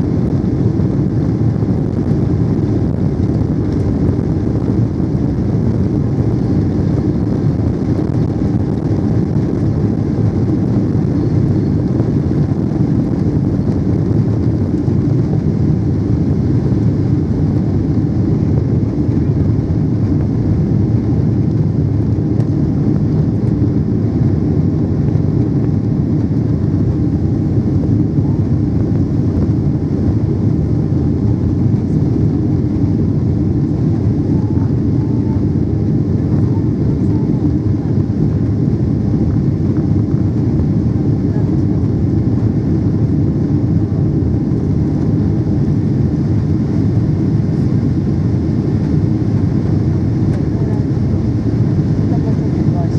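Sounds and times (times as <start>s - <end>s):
aircraft cabin engine rumble: 0.0s - 52.9s.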